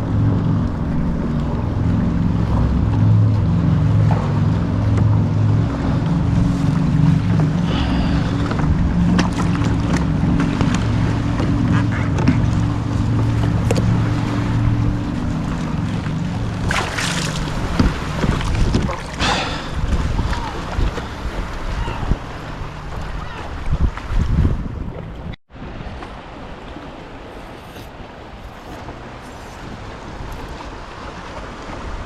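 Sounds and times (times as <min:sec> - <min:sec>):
water sloshing against kayak hull: 0:00.0 - 0:32.0
water splash: 0:00.0 - 0:32.0
wind rumbling on microphone: 0:00.0 - 0:32.0.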